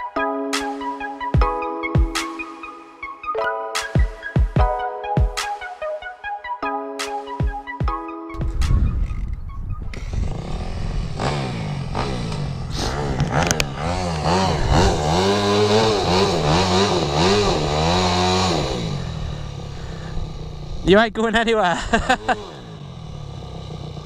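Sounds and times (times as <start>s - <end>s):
dirt bike engine revving: 9.9s - 24.0s.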